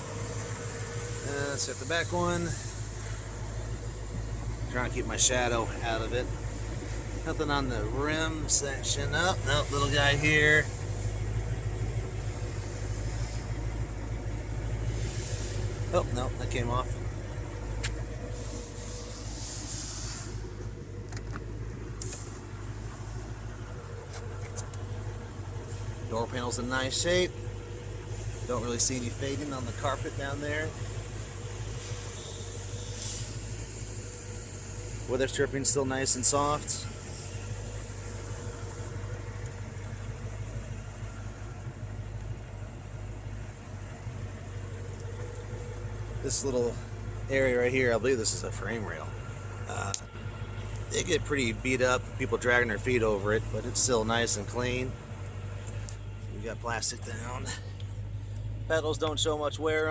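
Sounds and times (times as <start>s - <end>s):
car engine idling: 0.0s - 59.9s
low mechanical hum: 0.0s - 59.9s
brief hiss: 18.4s - 20.5s, 22.0s - 22.4s.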